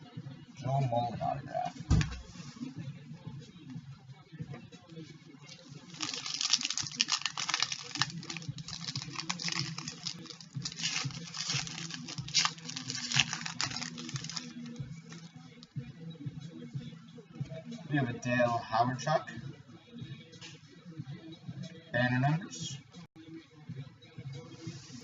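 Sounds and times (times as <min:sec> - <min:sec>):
wrapper crinkling and tearing: 0:05.5 - 0:15.3.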